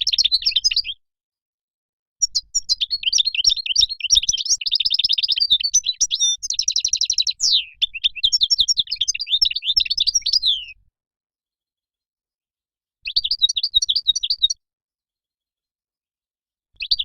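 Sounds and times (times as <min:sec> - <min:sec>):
bird twittering trills: 0:02.2 - 0:10.8.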